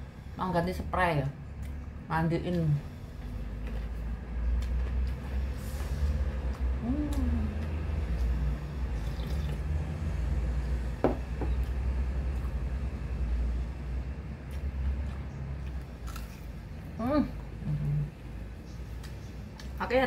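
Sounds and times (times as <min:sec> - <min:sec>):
chewing food: 0:01.5 - 0:10.0, 0:14.2 - 0:20.0
soft mouth clicks: 0:06.4 - 0:09.6.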